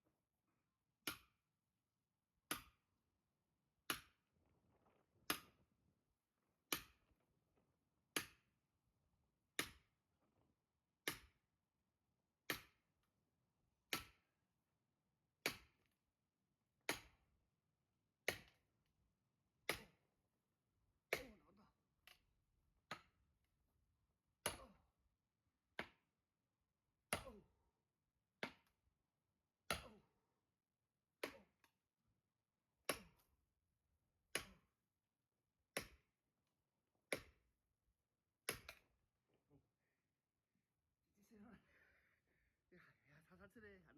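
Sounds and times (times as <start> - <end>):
axe blows splitting firewood: 21.1 - 21.4, 27.1 - 27.4, 29.7 - 30.0, 31.2 - 31.7, 34.3 - 34.7, 35.8 - 36.1, 38.5 - 38.9.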